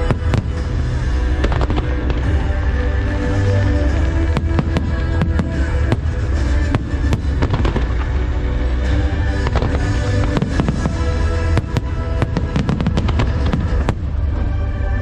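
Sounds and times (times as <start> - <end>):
fireworks bangs: 3.8 - 8.4, 9.2 - 15.0.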